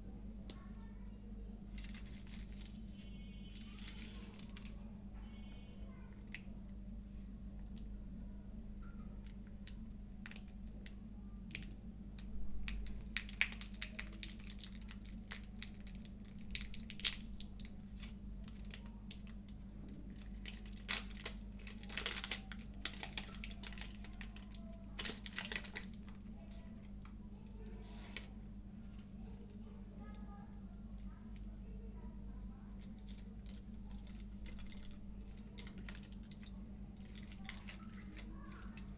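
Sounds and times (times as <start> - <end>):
steady low hum: 0.0 - 38.9
chocolate wrapper crackling: 1.6 - 4.8, 9.2 - 28.4, 32.6 - 38.9.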